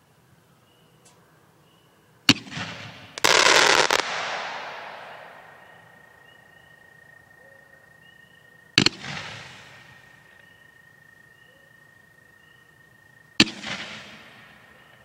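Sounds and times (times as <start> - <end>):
firework bang: 2.3 - 5.8
fireworks crackling: 2.3 - 5.9
firework hiss: 3.1 - 5.6.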